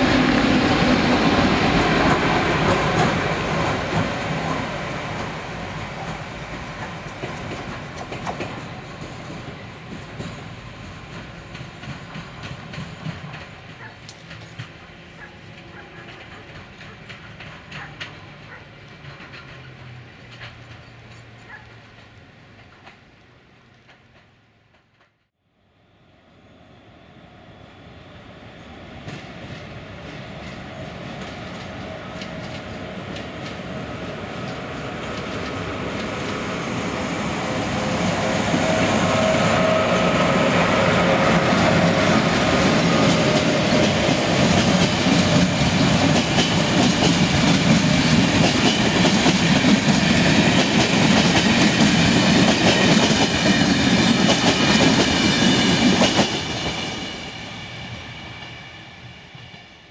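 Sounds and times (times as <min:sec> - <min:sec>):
train rumble and rail noise: 0:00.0 - 0:59.9
wheel clatter on rails: 0:00.2 - 0:23.1, 0:29.0 - 0:36.6.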